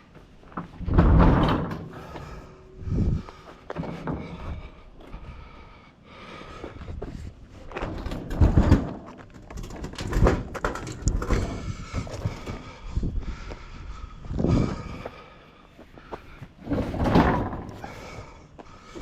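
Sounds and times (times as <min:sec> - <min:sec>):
heavy appliance clunking and scraping: 0:00.5 - 0:04.8, 0:07.6 - 0:12.9, 0:16.6 - 0:19.0.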